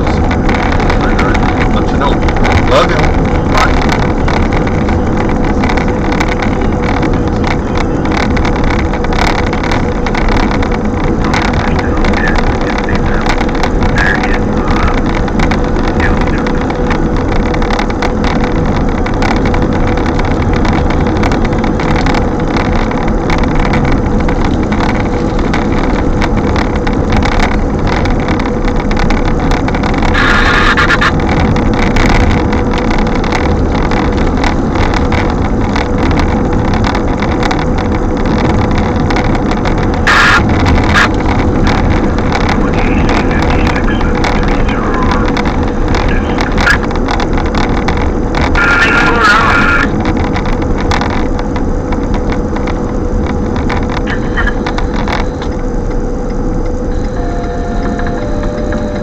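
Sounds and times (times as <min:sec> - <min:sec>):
constant hum: 0:00.0 - 0:59.0
strong gusting wind: 0:00.0 - 0:59.0
brief higher tone: 0:56.9 - 0:59.0.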